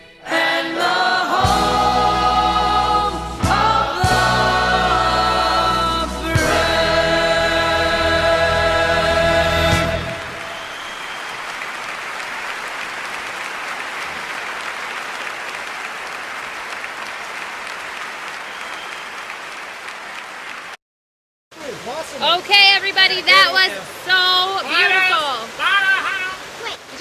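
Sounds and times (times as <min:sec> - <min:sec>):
crowd applause: 0:06.6 - 0:20.8.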